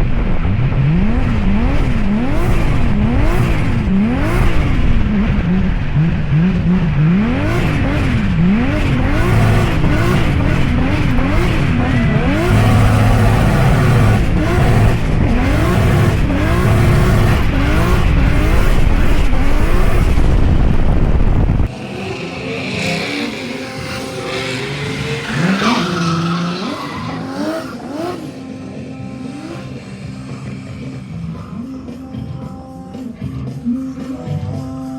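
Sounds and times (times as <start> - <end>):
car engine revving: 0.0 - 31.8
steady musical tones: 0.0 - 32.9
tyre squeal: 24.6 - 28.0.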